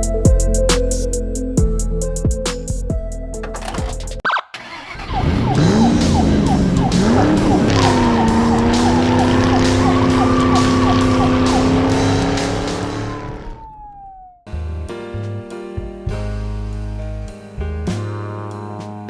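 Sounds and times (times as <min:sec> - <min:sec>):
car engine revving: 0:04.6 - 0:14.3
high whining note: 0:05.2 - 0:14.4.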